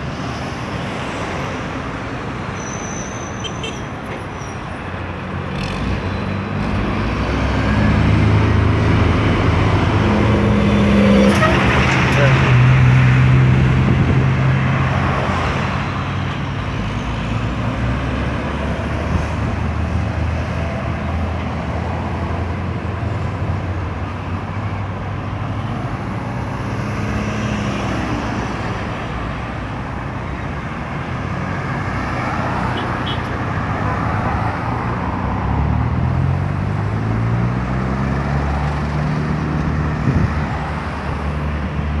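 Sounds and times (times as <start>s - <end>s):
road traffic: 0.0s - 42.0s.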